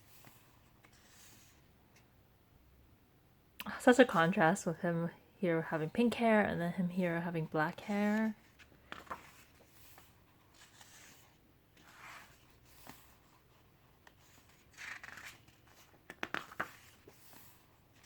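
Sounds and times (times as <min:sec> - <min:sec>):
book pages turning: 0:00.0 - 0:02.0, 0:08.1 - 0:18.0.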